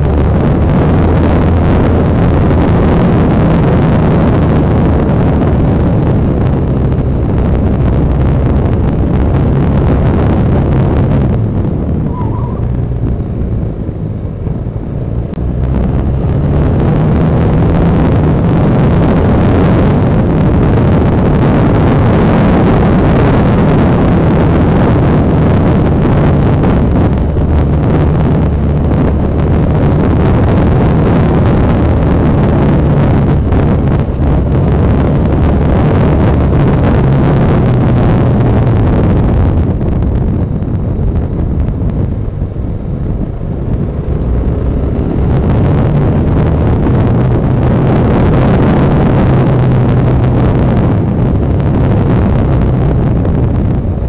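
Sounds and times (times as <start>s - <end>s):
motorcycle engine running: 0.0s - 54.0s
wind on the microphone: 0.0s - 54.0s.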